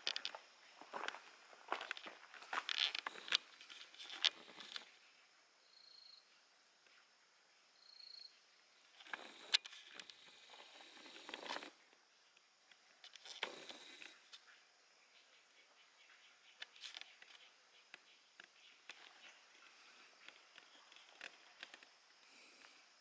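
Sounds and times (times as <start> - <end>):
scratchy rustling and scraping: 1.7 - 4.9.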